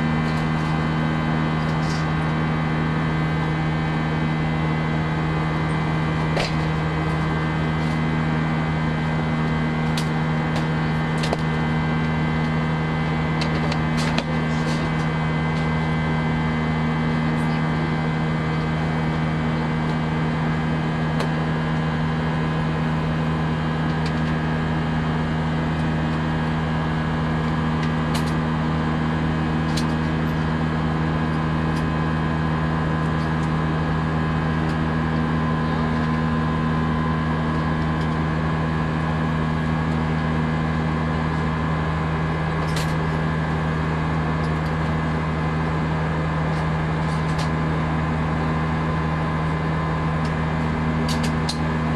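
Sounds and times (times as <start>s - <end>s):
aircraft cabin drone: 0.0s - 51.9s.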